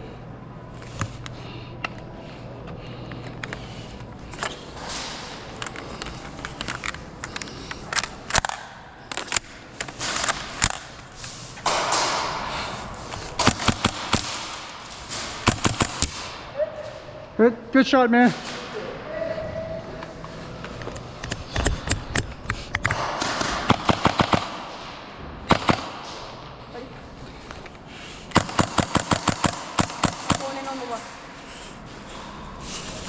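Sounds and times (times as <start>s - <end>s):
airsoft guns firing: 13.4s - 16.4s, 22.9s - 24.8s, 25.4s - 26.4s, 28.3s - 30.8s.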